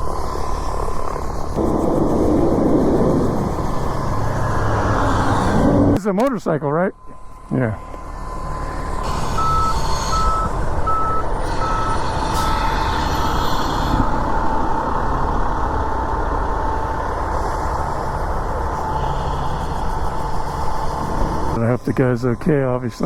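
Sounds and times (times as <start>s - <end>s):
low engine rumble: 0.0s - 23.0s
reversing alarm beeping: 7.0s - 15.0s.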